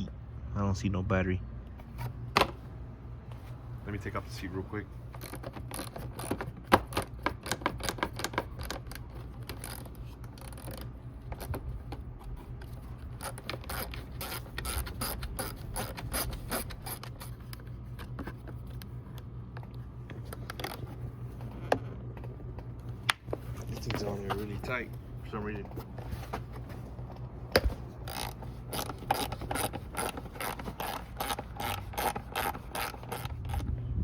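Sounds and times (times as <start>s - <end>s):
ratchet wrench clicking: 13.2s - 17.3s, 28.0s - 33.7s.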